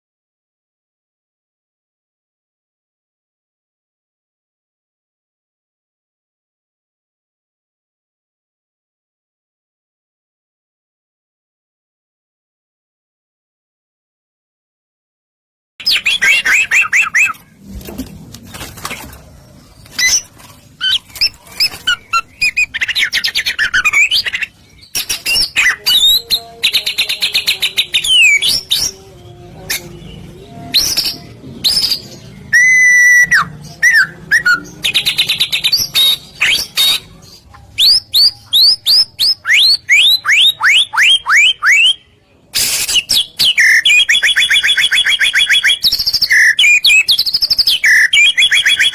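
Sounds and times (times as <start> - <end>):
bird singing whistles: 30.7 - 37.0, 37.8 - 42.0, 42.6 - 48.9.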